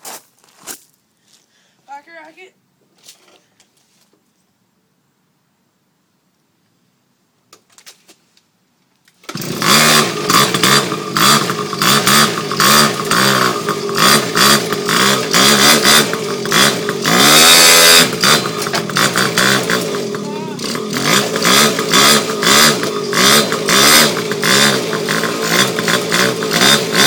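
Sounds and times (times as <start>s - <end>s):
small two-stroke engine revving: 9.2s - 27.0s.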